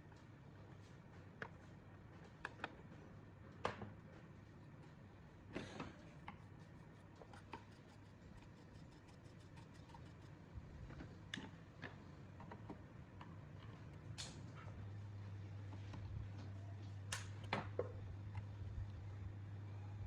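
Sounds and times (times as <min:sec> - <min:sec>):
low steady hum: 0:04.0 - 0:20.0.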